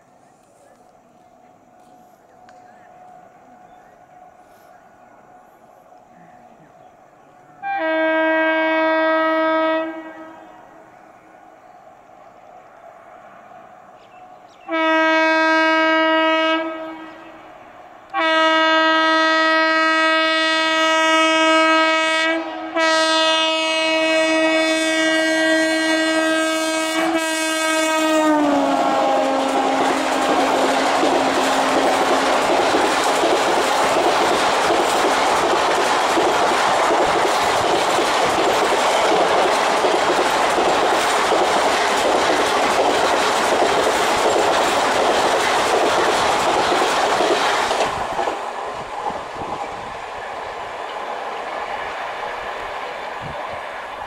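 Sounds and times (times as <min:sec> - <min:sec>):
train coaches rushing past: 0:00.0 - 0:54.0
train horn blasts: 0:07.6 - 0:10.8, 0:14.7 - 0:32.6.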